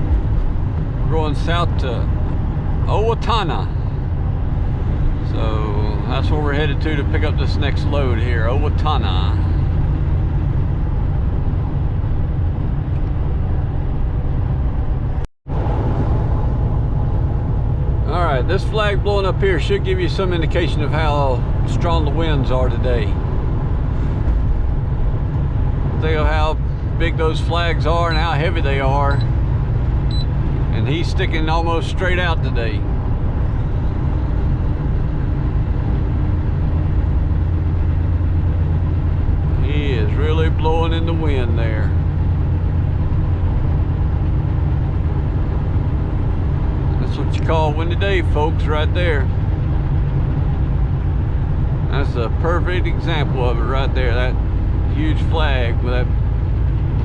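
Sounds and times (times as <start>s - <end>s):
road noise: 0.0s - 57.0s
truck engine rumble: 0.0s - 57.0s.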